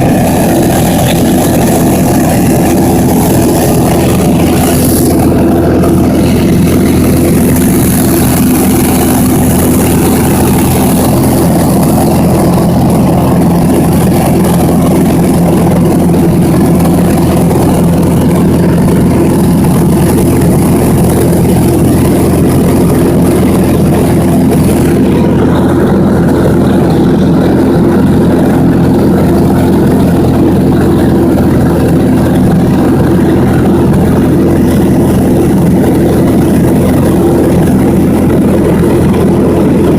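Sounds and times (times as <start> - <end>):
propeller airplane engine droning: 0.0 - 39.9.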